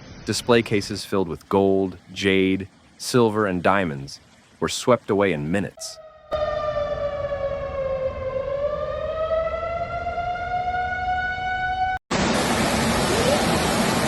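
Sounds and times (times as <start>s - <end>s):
siren wailing: 5.8s - 12.0s
rush of water: 12.1s - 14.0s.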